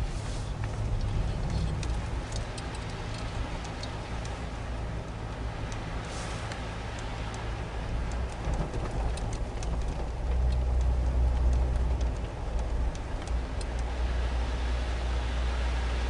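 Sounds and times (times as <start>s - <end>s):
car engine and road rumble: 0.0s - 16.0s
faint clicks: 0.6s - 4.4s, 6.4s - 13.9s.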